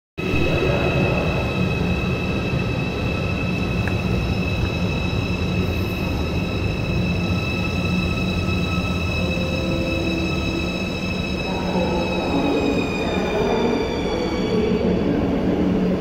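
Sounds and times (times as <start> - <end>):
high-speed train rumble and whine: 0.2 - 16.0.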